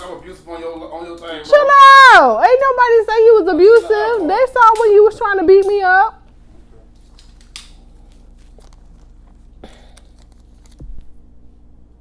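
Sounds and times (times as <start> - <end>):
low electrical hum: 0.0 - 12.0
faint clicks and rustles: 5.6 - 11.2.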